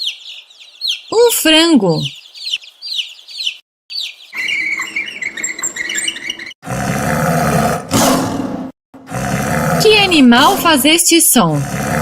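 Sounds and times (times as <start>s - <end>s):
chickens peeping: 0.0s - 1.2s, 2.0s - 6.5s.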